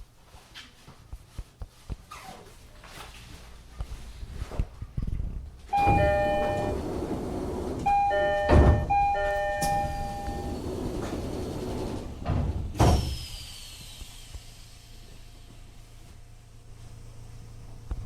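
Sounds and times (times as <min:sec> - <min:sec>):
train door chime: 0:05.7 - 0:11.1
sliding doors thudding shut: 0:05.7 - 0:13.4.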